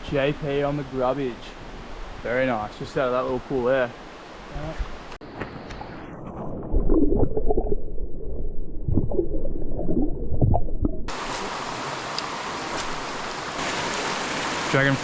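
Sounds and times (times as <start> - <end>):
underwater sloshing and bubbling: 5.7 - 14.4
flowing creek water: 11.1 - 15.0.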